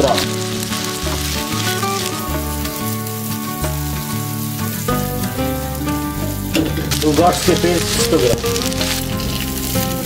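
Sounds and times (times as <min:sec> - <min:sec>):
vegetables sizzling in a frying pan: 0:00.0 - 0:10.0.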